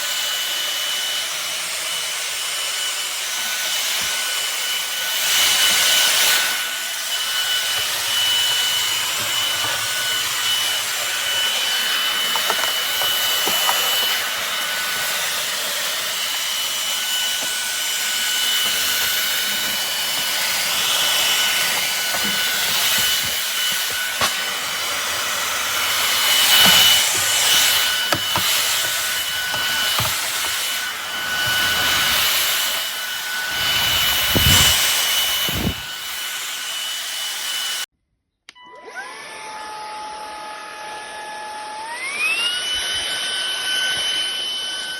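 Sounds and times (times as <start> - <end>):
vacuum motor whining: 0.0 - 37.8, 38.8 - 44.9
vacuum brush rubbing: 2.4 - 37.8.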